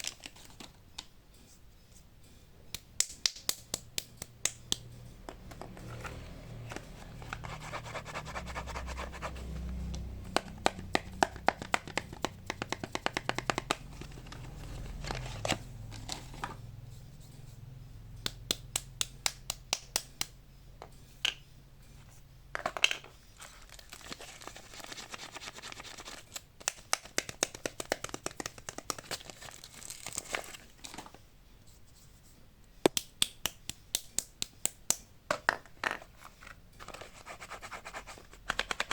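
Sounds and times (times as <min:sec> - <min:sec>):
packaging clicks and taps: 0:09.9 - 0:16.4, 0:26.3 - 0:30.2, 0:38.4 - 0:38.9
wrappers crinkling and tearing: 0:23.5 - 0:26.4, 0:28.8 - 0:31.0.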